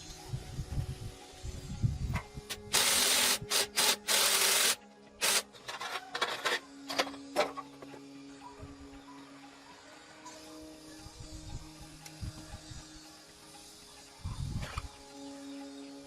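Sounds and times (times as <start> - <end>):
faint background music: 0.0 - 16.0
sharp hissing bursts: 2.5 - 5.5.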